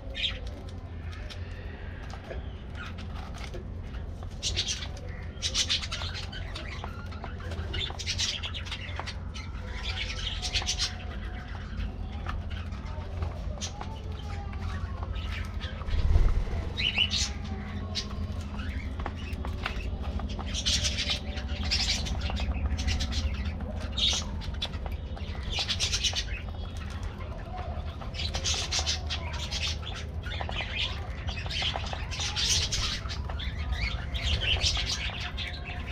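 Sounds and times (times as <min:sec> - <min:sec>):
low hum: 0:15.7 - 0:19.8.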